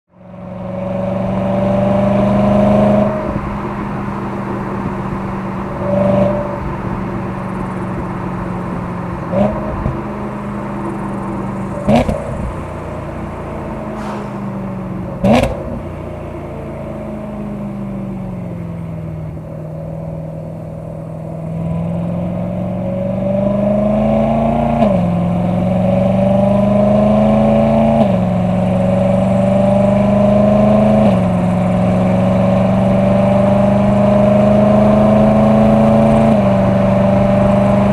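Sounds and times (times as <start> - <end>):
car engine driving: 0.1 - 37.9.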